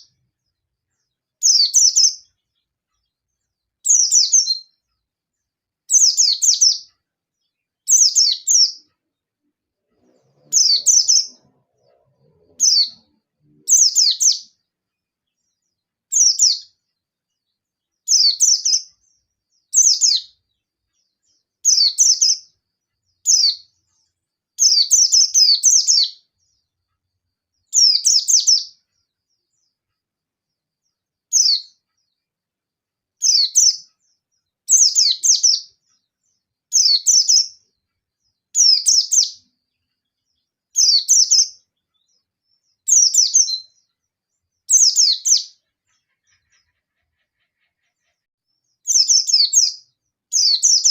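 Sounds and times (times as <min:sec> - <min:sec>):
bird singing fast high chirps: 0:01.4 - 0:02.4, 0:03.8 - 0:04.8, 0:05.9 - 0:06.9, 0:07.8 - 0:08.9, 0:10.0 - 0:14.6, 0:16.1 - 0:16.8, 0:18.0 - 0:20.4, 0:21.6 - 0:22.5, 0:23.2 - 0:23.7, 0:24.6 - 0:26.4, 0:27.7 - 0:28.8, 0:31.3 - 0:31.8, 0:33.2 - 0:33.9, 0:34.7 - 0:35.8, 0:36.7 - 0:37.6, 0:38.6 - 0:39.5, 0:40.8 - 0:41.6, 0:42.6 - 0:43.9, 0:44.6 - 0:48.2, 0:48.8 - 0:50.9.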